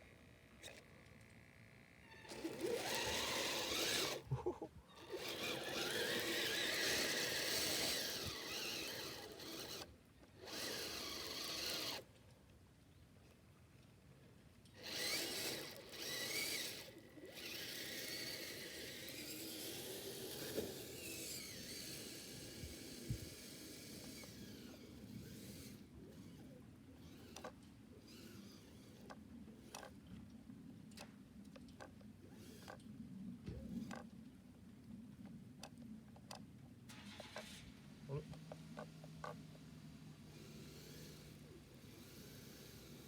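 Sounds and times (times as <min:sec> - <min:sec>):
electric motor whirring: 0:02.1 - 0:12.1, 0:14.8 - 0:29.9, 0:40.2 - 0:43.0.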